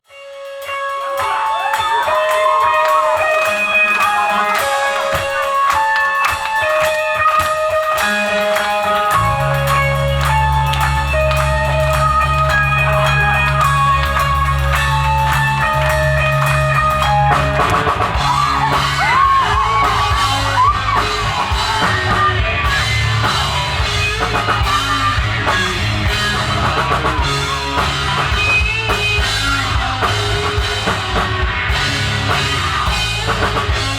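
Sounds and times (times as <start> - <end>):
guitar melody: 0.1 - 33.9
rock band playing live: 0.1 - 33.9
heavy bass line: 7.2 - 33.9.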